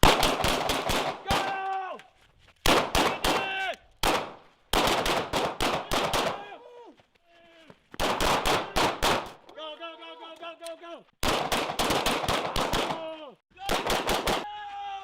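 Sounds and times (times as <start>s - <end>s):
pistol shots: 0.0s - 1.6s, 2.7s - 6.4s, 8.0s - 9.4s, 11.2s - 13.0s, 13.7s - 14.5s
people shouting: 1.2s - 2.1s, 3.1s - 3.8s, 5.9s - 7.8s, 9.6s - 11.0s, 12.9s - 15.0s.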